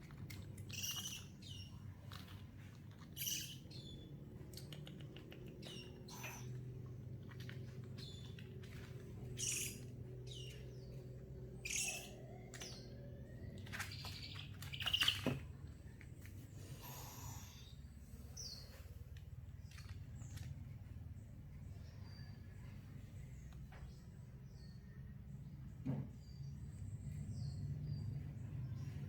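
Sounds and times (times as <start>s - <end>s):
steady low hum: 0.0s - 29.0s
baby owl crying: 6.0s - 6.6s, 9.4s - 10.4s, 11.6s - 12.4s.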